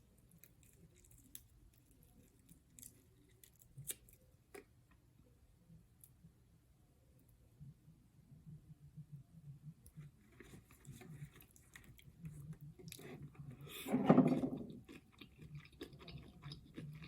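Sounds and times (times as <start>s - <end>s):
chewing seafood: 10.4s - 17.0s.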